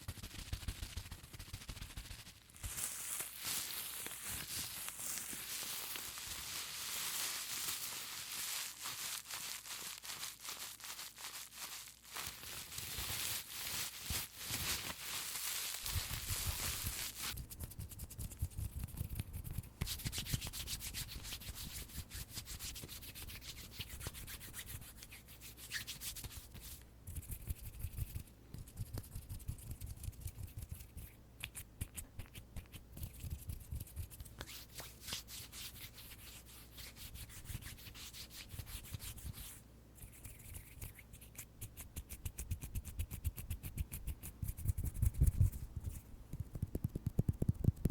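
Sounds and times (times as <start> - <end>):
hands rubbing near microphone: 0.0 - 47.9
bubble wrap crinkling: 0.5 - 17.4.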